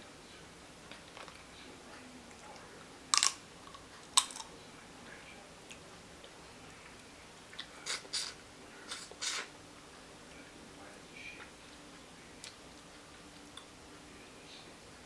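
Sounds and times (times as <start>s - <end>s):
crab shell cracking: 3.2s - 4.5s.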